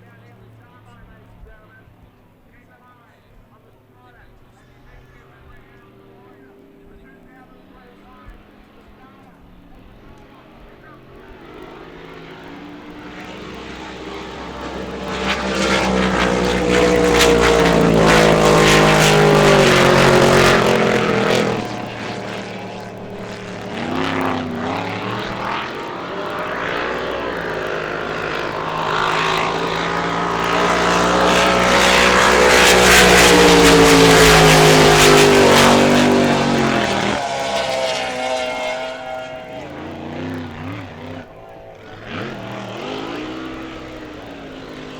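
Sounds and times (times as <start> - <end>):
racing boat engines passing: 0.0 - 44.9.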